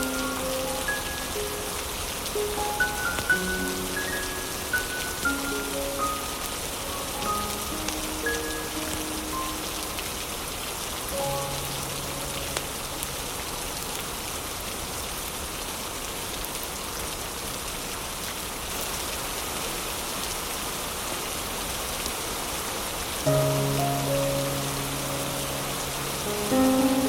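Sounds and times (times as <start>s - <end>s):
soft held instrumental notes: 0.0s - 10.5s, 23.3s - 27.0s
steady rain hiss: 0.0s - 27.0s.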